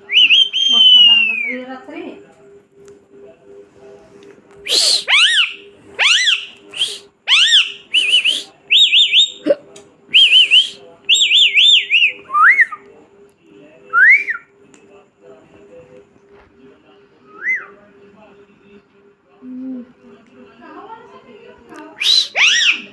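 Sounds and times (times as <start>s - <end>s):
parrot whistling: 0.1s - 1.6s, 4.6s - 9.4s, 10.1s - 12.7s, 22.0s - 22.9s.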